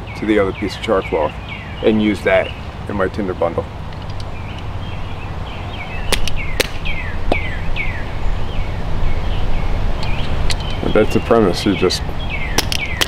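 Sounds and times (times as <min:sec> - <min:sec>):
songbird chirping: 0:00.0 - 0:13.0
sharp clicks: 0:06.1 - 0:07.4, 0:12.6 - 0:13.0.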